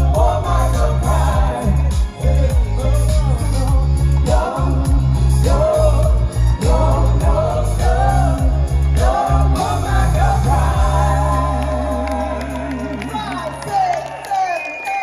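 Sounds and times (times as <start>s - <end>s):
live band playing pop song: 0.0s - 15.0s.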